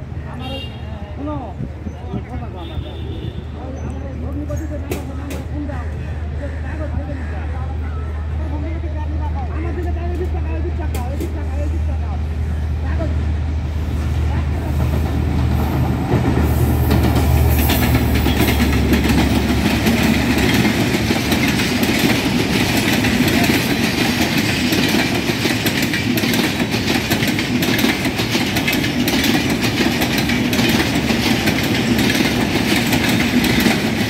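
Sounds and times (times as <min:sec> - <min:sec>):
train coaches rumbling: 0:00.0 - 0:34.0
diesel locomotive engine drone: 0:03.0 - 0:34.0
wheels clacking over rail joints: 0:14.4 - 0:34.0.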